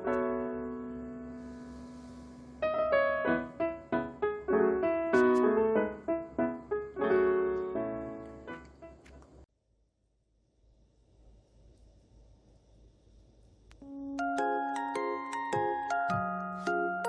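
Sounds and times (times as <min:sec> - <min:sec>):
solo piano music: 0:00.0 - 0:09.1, 0:13.8 - 0:17.0.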